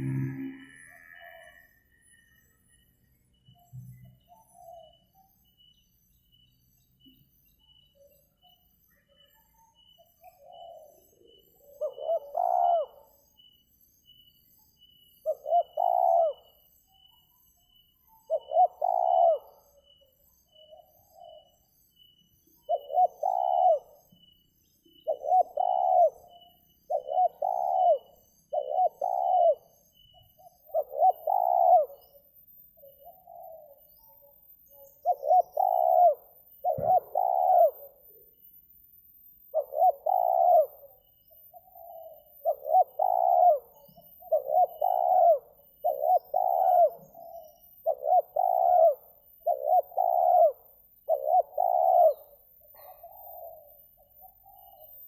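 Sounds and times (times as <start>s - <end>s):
doves cooing: 10.2s - 13.2s, 15.3s - 16.6s, 18.3s - 19.9s, 22.7s - 24.1s, 25.0s - 32.2s, 32.8s - 33.9s, 34.8s - 38.1s, 39.5s - 55.0s.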